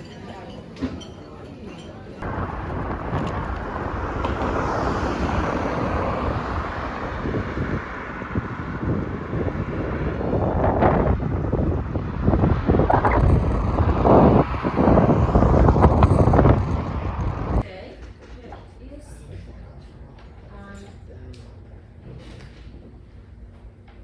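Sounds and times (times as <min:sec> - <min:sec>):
wind buffeting microphone: 0:02.2 - 0:17.6.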